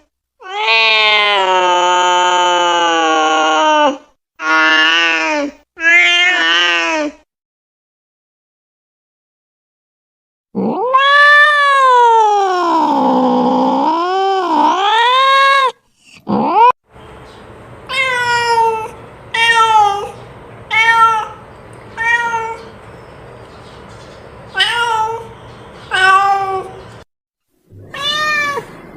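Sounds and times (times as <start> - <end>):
cat meowing: 0.4 - 1.6, 10.6 - 12.6, 17.9 - 22.8, 24.5 - 25.3, 25.9 - 26.8, 27.7 - 28.9
cat yowling: 0.4 - 7.0, 10.6 - 16.7, 17.9 - 21.4, 22.0 - 22.8, 24.5 - 25.3, 25.9 - 26.8, 27.7 - 28.9.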